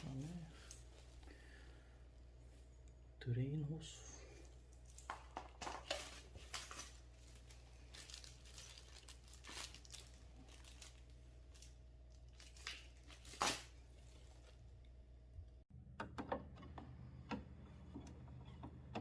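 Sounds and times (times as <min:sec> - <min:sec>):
plastic packaging crinkling: 0:04.7 - 0:14.7.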